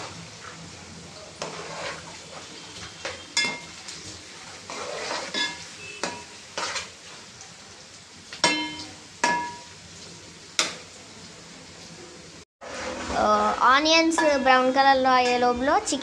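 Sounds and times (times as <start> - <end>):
onions sizzling in oil: 0.0 - 16.0
metal spoon clinking on pan: 3.0 - 3.8, 5.2 - 6.4, 8.4 - 9.7.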